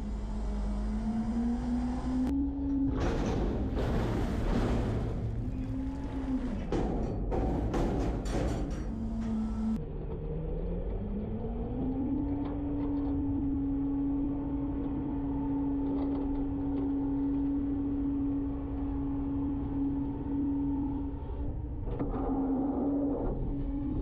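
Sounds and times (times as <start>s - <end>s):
garbage truck engine rumble: 0.0s - 10.6s.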